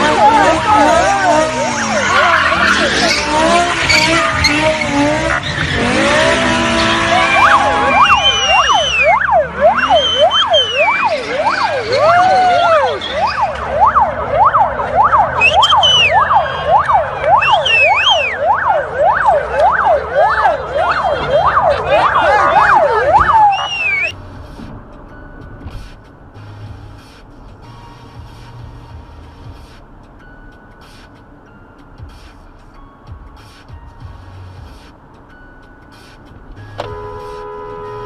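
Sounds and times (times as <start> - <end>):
squeals and gliding tones: 0.0 - 24.2
siren in yelp mode: 6.9 - 24.1.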